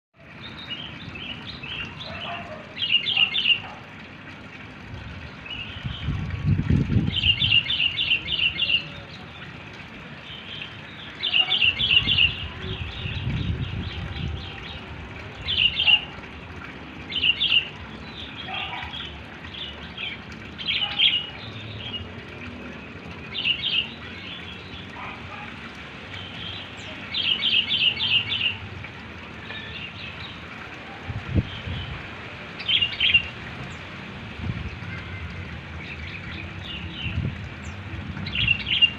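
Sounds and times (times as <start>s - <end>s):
wind gusts on microphone: 5.8s - 7.7s, 12.0s - 15.1s, 31.1s - 32.1s, 34.2s - 34.9s.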